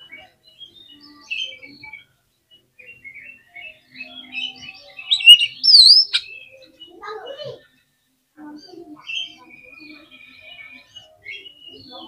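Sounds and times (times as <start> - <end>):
bird chirping and whistling: 5.1 - 6.2.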